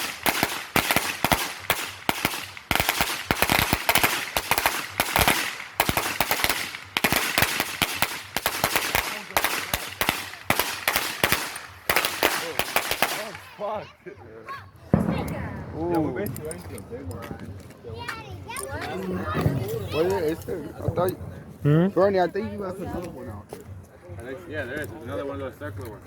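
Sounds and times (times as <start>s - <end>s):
firecrackers banging: 0.0s - 13.6s, 14.9s - 19.9s.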